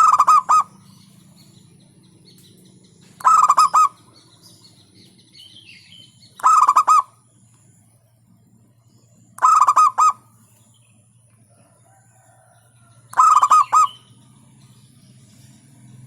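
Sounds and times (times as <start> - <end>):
dove cooing: 0.0 - 1.0, 3.1 - 4.4, 6.3 - 7.2, 9.4 - 10.4, 13.1 - 14.3
faint low hum: 0.0 - 16.0.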